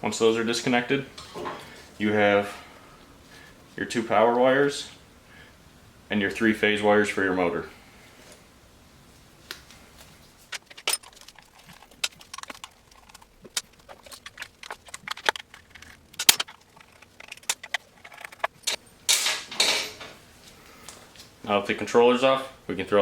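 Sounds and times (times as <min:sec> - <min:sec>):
metallic clicks of tools and wires: 0:10.5 - 0:20.2.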